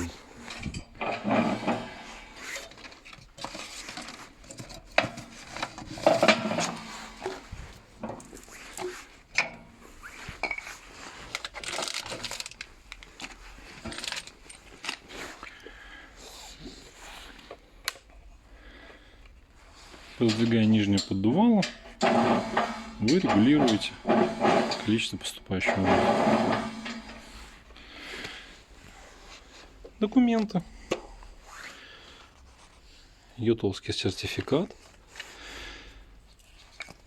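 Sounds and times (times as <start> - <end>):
stove slider moving: 0.4 - 2.8, 4.0 - 9.7, 20.2 - 27.6
metal clinks and knocks: 3.5 - 8.4, 25.7 - 27.4.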